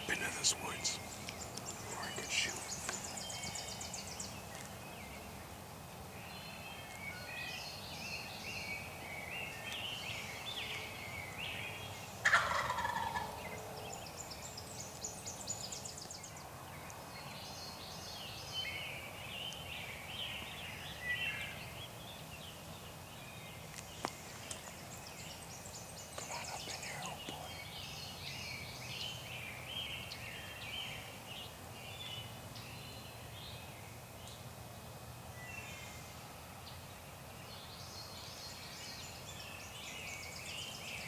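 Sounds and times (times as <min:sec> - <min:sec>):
turkey gobbling: 0:12.3 - 0:13.4.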